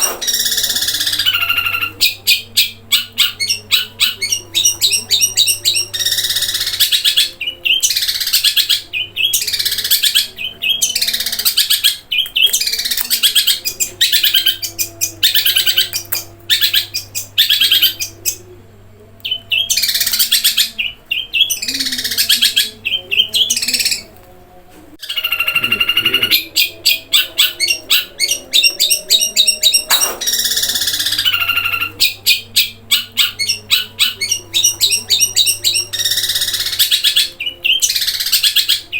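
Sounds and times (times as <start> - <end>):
shrike even-pitched call: 0.0 - 2.5, 25.0 - 36.9
shrike harsh chattering song: 0.0 - 18.6, 19.2 - 24.1, 25.0 - 38.9.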